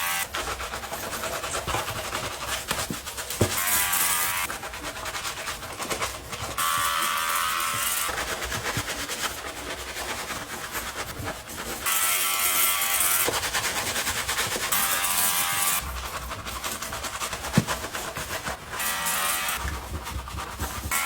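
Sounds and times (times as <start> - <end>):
small electric motor buzzing: 6.6 - 8.1, 14.7 - 15.8, 18.8 - 19.6.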